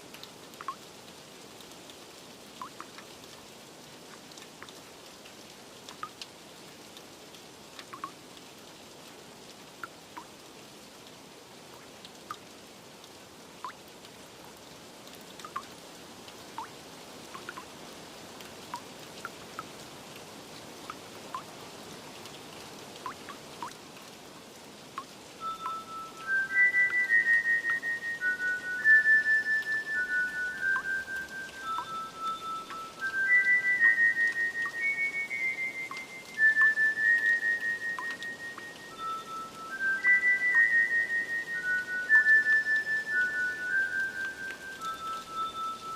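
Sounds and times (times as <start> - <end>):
light rain: 0.0 - 45.9
water drops dripping: 0.1 - 0.9, 2.6 - 3.4, 4.1 - 4.8, 5.9 - 6.3, 7.8 - 8.2, 9.8 - 10.3, 13.6 - 13.8, 15.4 - 15.8, 16.5 - 17.7, 18.4 - 19.8, 20.8 - 21.5, 23.0 - 24.1, 24.9 - 45.9
soft chime music: 25.4 - 45.9.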